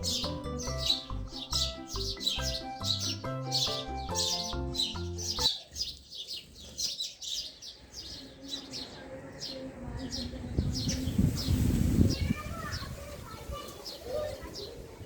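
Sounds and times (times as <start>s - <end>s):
background music: 0.0s - 5.5s
small birds chirping: 0.0s - 15.0s.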